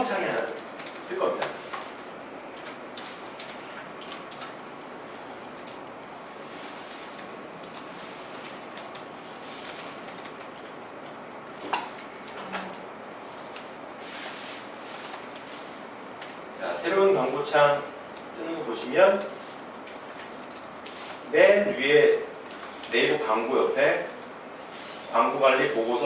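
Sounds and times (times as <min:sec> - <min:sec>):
keyboard and mouse clicks: 0:00.3 - 0:02.0, 0:02.6 - 0:05.9, 0:06.9 - 0:13.7, 0:16.2 - 0:16.6, 0:19.2 - 0:21.0, 0:24.1 - 0:24.4.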